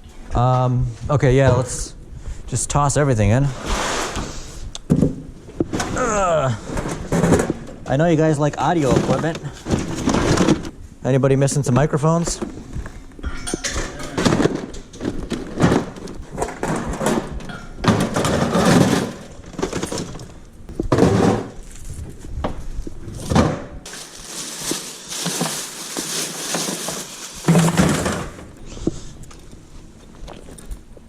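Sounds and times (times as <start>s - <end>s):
items clattering into a box: 8.8s - 10.8s, 12.3s - 21.8s, 23.2s - 28.6s
rustling: 21.5s - 29.8s.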